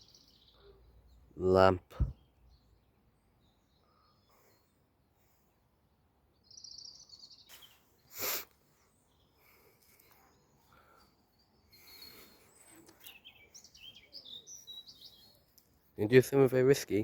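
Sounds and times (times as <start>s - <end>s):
small bird chirping: 0.0s - 1.4s, 6.3s - 16.0s.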